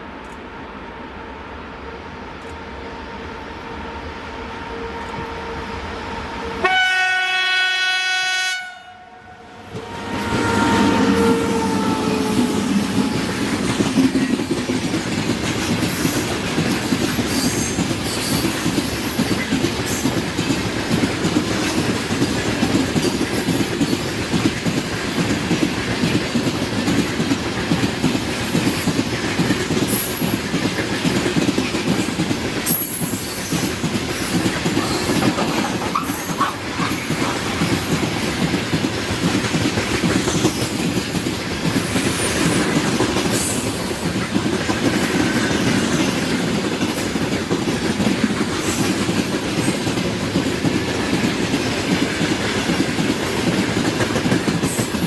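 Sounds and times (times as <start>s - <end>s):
locomotive horn blast: 2.8s - 13.6s
train wheels rumbling over rails: 9.5s - 55.0s.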